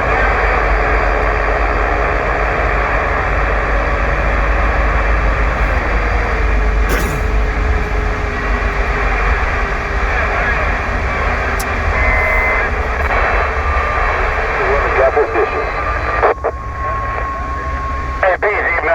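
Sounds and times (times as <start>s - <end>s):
truck engine drone and road noise: 0.0s - 18.9s
sharp click: 6.9s - 7.3s.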